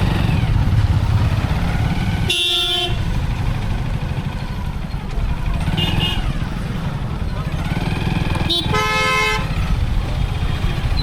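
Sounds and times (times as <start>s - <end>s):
motorcycle rumbling: 0.0s - 11.0s
vehicle horn honking: 2.2s - 3.1s, 5.7s - 6.4s, 8.4s - 9.6s.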